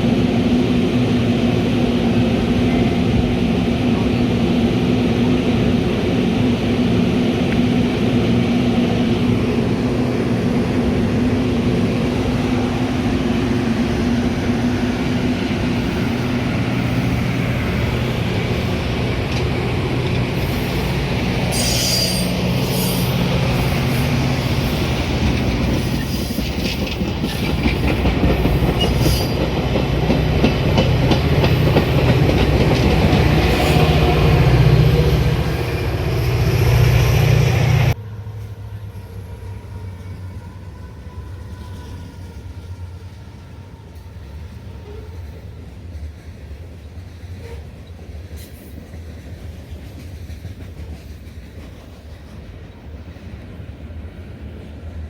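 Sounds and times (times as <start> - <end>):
train wheels rumbling on rails: 0.0 - 55.0
high-pitched wheel squeals: 21.5 - 23.1.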